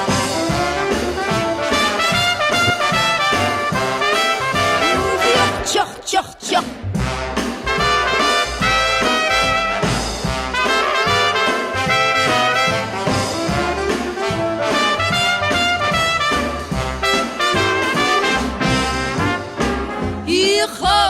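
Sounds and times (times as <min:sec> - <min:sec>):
swing brass band music: 0:00.0 - 0:05.8, 0:06.6 - 0:21.0.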